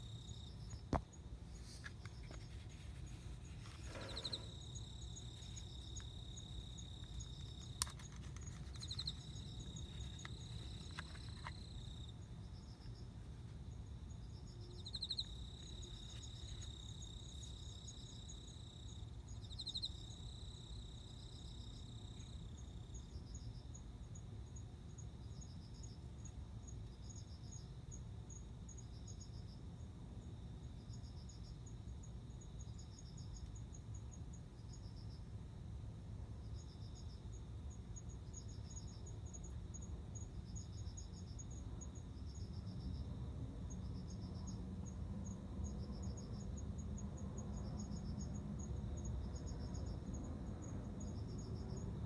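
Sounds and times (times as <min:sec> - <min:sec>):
insect high ticks: 0:00.0 - 0:12.1, 0:14.8 - 0:20.0
cricket chirping: 0:00.0 - 0:52.0
insect high trill: 0:01.6 - 0:12.1.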